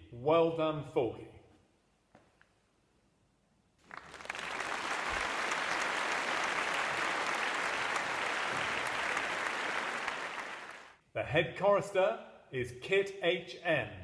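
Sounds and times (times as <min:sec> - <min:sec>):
crowd clapping: 0:03.8 - 0:11.0.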